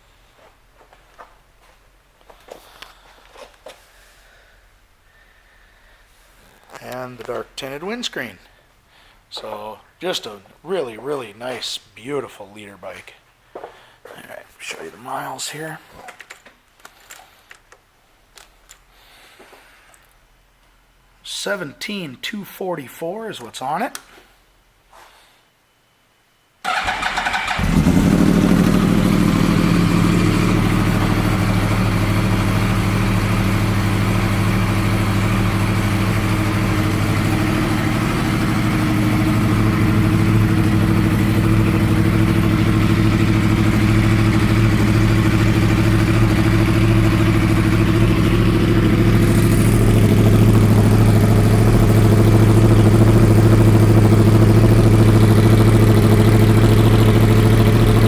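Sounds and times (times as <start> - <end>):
motorcycle engine idling: 26.7 - 58.0.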